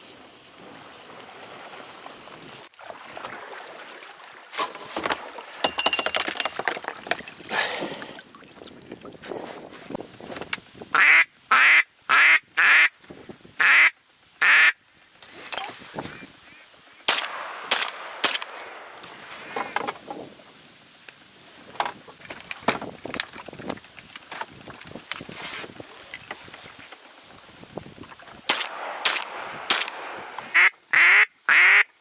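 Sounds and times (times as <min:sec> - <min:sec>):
duck quacking: 0:11.0 - 0:12.9, 0:13.6 - 0:14.8, 0:30.5 - 0:31.9.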